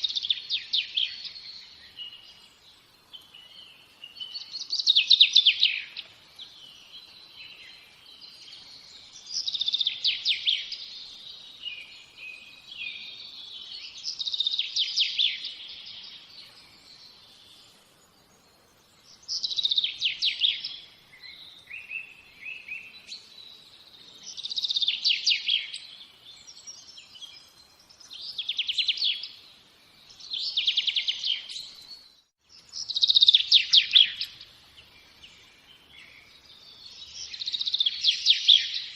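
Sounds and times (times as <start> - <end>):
songbird trilling: 32.7 - 34.4.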